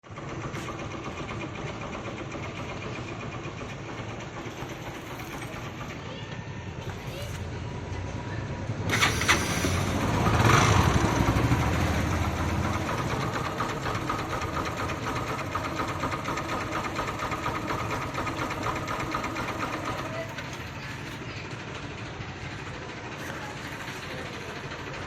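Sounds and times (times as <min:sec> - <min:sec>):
motorcycle engine running: 0:07.6 - 0:25.0
rapid even engine ticking: 0:08.6 - 0:25.0.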